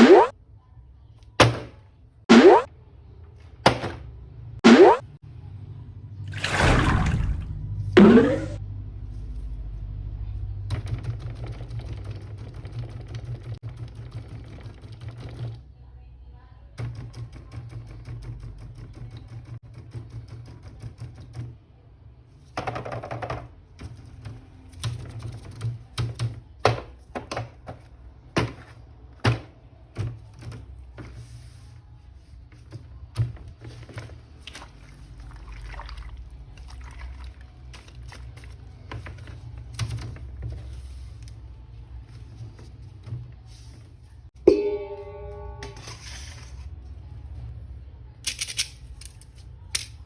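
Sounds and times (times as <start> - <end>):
quiet background music: 0.0 - 7.1, 7.8 - 50.0
short pitched tone: 44.5 - 46.2
plastic toy parts clicking: 48.2 - 50.0.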